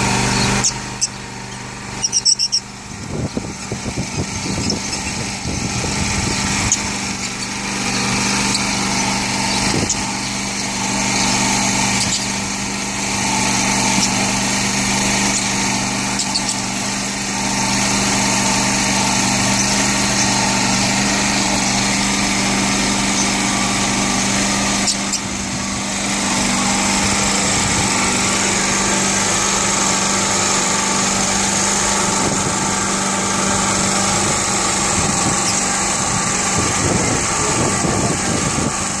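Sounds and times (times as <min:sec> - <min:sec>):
small motor humming: 0:00.0 - 0:39.0
lovebirds chirping: 0:00.3 - 0:02.7.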